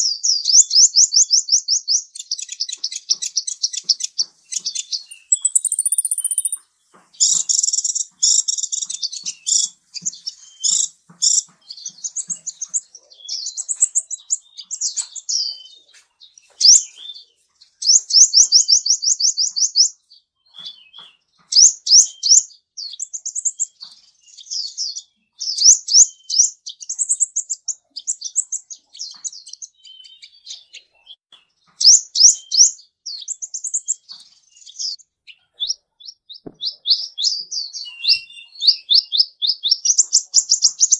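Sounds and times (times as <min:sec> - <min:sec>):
songbird chirping and trilling: 0:00.0 - 0:40.9.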